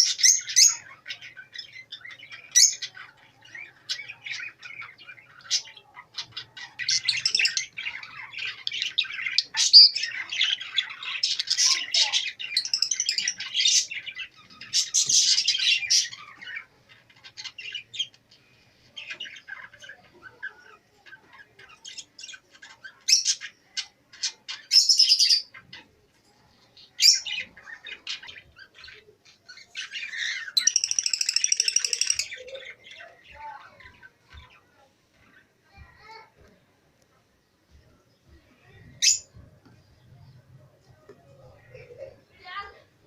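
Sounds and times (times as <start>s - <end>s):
parrots chirping and squawking: 0.0s - 18.3s, 19.0s - 26.0s, 26.8s - 35.4s, 39.0s - 39.3s.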